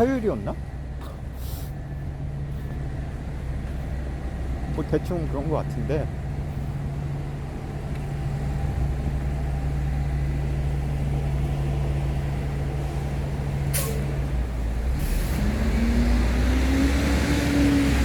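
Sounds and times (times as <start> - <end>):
large vehicle engine idling: 0.0 - 16.7
vehicle engine pulling away: 6.2 - 18.0.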